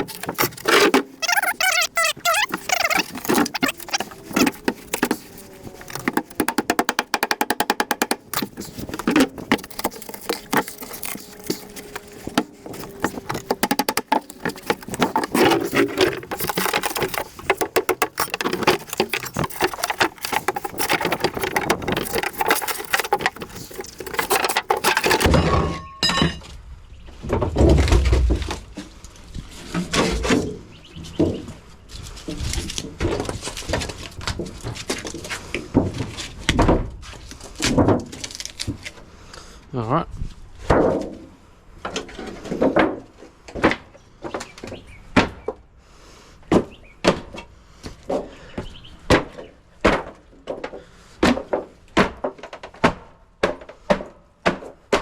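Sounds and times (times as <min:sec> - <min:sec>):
rapid clicks: 0:00.0 - 0:25.3
metal and plastic clattering and scraping: 0:00.0 - 0:26.5.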